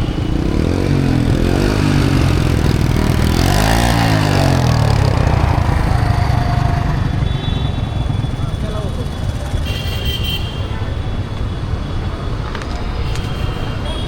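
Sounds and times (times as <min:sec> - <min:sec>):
motorcycle engines running: 0:00.0 - 0:09.9.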